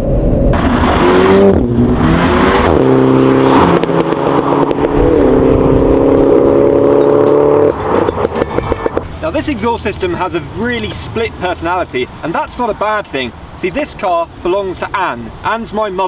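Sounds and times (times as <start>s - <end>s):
turbocharged engine running hard: 0.5s - 12.2s.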